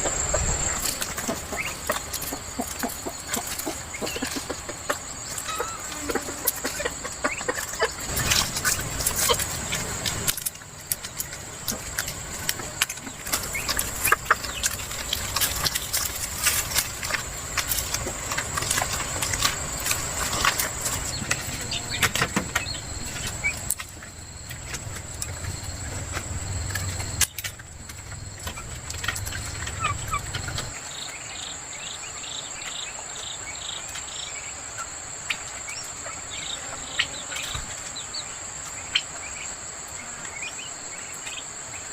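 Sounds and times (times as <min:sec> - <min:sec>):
high-pitched insect drone: 0:00.0 - 0:11.4
chickens clucking: 0:00.0 - 0:41.9.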